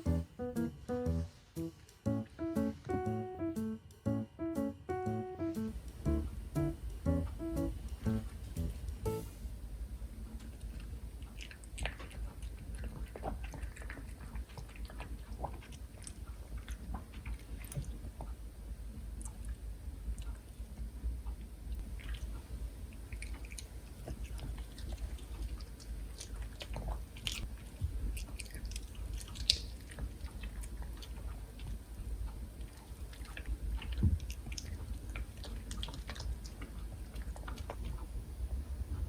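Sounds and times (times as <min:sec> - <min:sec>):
dog chewing food: 0:10.4 - 0:18.3, 0:23.0 - 0:38.1.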